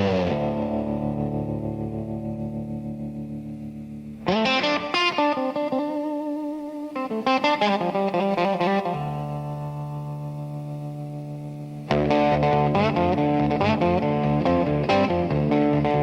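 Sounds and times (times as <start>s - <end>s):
distorted electric guitar: 0.0s - 16.0s.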